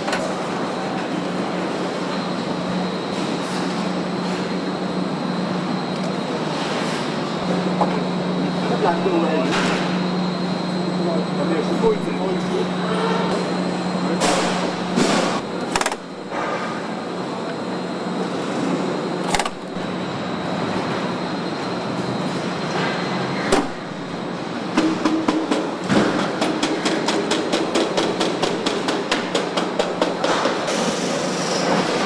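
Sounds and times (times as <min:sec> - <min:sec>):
machine hum: 0:03.7 - 0:26.0.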